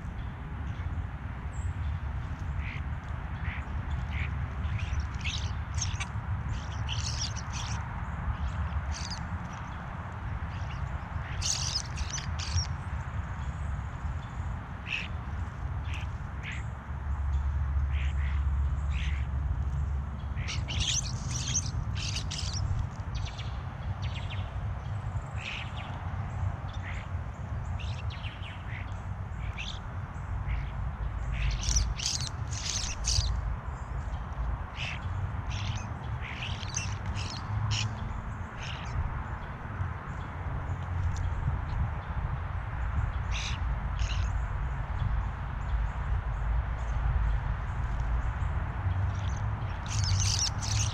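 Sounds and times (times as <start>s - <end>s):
birds calling: 2.3s - 7.8s, 8.4s - 9.8s, 10.5s - 13.7s, 14.8s - 15.2s, 20.3s - 24.5s, 26.7s - 34.2s, 34.8s - 39.0s, 49.1s - 50.9s.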